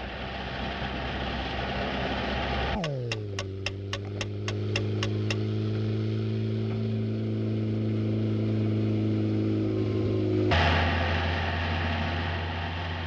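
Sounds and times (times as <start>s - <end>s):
car engine drone: 0.0s - 13.0s
sharp ticks: 2.8s - 5.5s.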